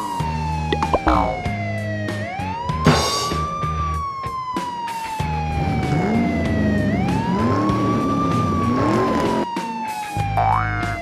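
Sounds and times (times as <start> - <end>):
police siren wailing: 0.0 - 11.0
music with steady beat: 0.8 - 1.6.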